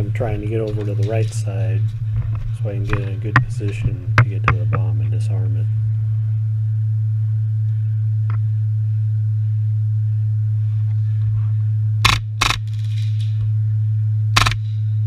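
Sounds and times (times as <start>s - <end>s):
low droning hum: 0.0s - 15.0s
loud burst of noise: 12.0s - 13.3s, 14.3s - 14.6s.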